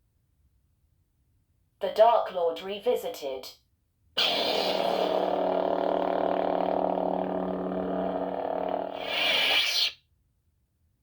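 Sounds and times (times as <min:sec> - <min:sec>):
low electric blade hum: 0:04.8 - 0:09.0.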